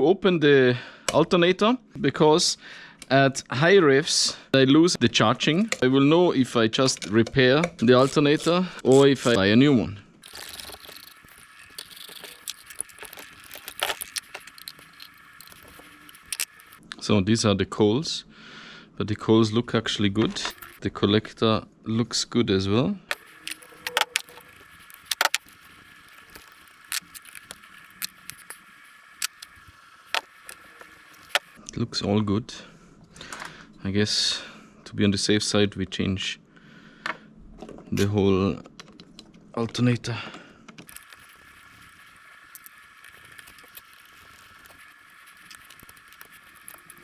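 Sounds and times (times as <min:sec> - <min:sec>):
small metal parts clicking: 0:10.2 - 0:16.8, 0:20.4 - 0:20.8, 0:23.1 - 0:31.6, 0:40.9 - 0:47.0.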